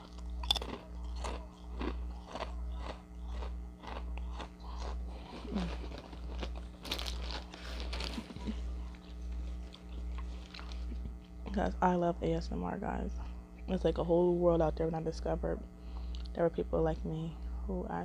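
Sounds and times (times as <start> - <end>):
crisp chewing crunches: 0.0 - 11.4
steady low hum: 0.0 - 18.0.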